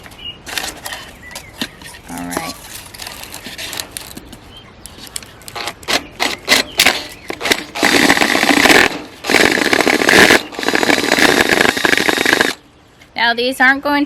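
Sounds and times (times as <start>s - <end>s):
power drill boring gourd shell: 5.6s - 12.6s.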